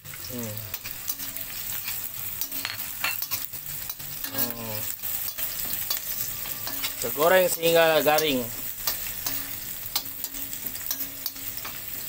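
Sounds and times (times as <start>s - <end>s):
fish frying in hot oil: 0.0s - 12.0s
spoon scraping a pan: 0.1s - 12.0s.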